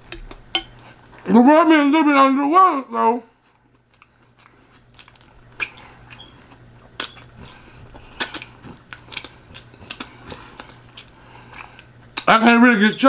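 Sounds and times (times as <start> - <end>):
wet chewing mouth clicks: 3.5 - 12.3.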